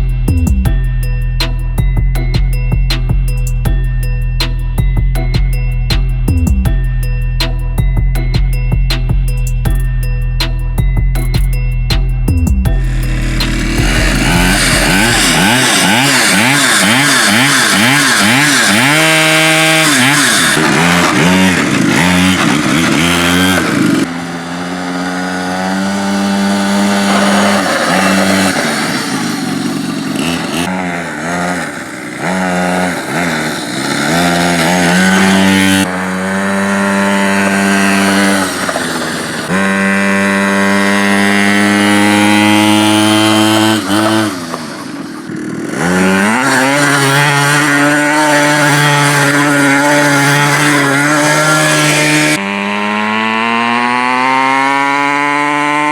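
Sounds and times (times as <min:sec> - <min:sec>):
small engine revving: 0:12.7 - 0:55.9.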